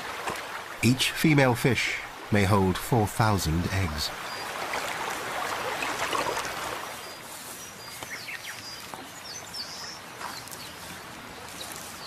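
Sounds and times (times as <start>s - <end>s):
small birds chirping: 3.8s - 12.0s.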